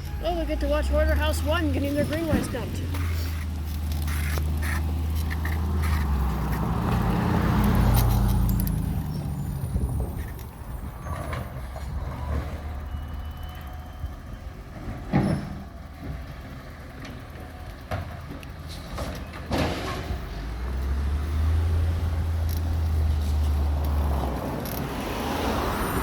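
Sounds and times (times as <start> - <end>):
cart clunking: 0.0 - 25.0
garbage truck engine drone: 0.0 - 26.0.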